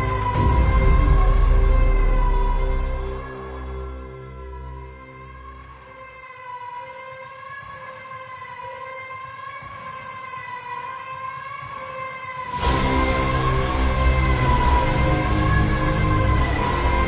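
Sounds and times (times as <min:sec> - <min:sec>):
music beats: 0:00.0 - 0:05.0, 0:12.5 - 0:17.0
low rumble: 0:00.0 - 0:05.8, 0:12.6 - 0:17.0.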